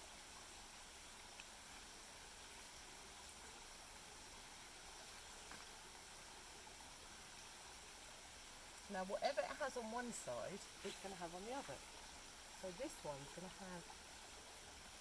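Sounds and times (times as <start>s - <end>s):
faint outdoor hiss: 0.0s - 15.0s
faint soft ticks: 1.3s - 1.6s, 5.4s - 5.8s, 8.7s - 9.7s.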